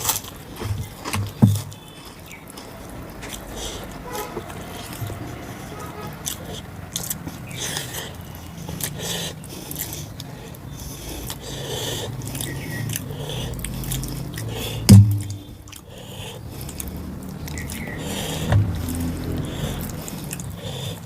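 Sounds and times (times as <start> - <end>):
chewing and wet mouth sounds: 0.0 - 21.0
loud dull thump: 14.9 - 15.6.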